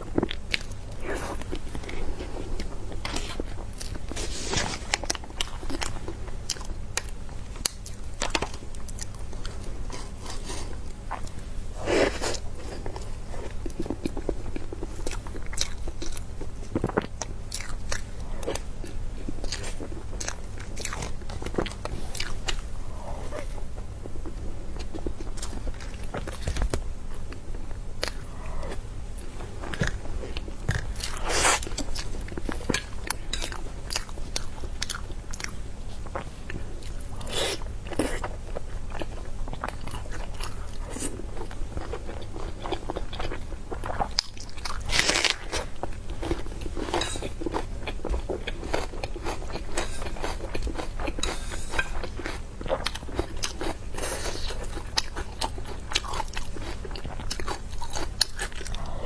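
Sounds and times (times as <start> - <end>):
person biting and chewing: 29.6 - 36.3.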